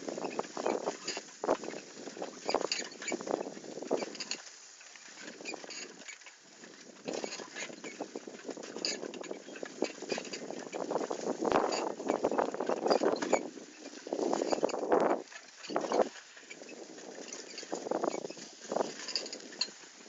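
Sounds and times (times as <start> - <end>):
bicycle clicks and rattles: 0.0 - 19.9
bicycle tyres crunching on ground: 0.0 - 20.0.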